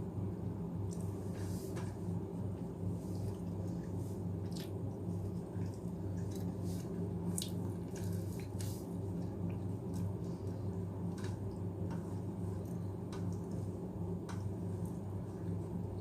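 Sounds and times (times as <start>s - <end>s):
steady low hum: 0.0s - 16.0s
person chewing food: 3.1s - 10.7s.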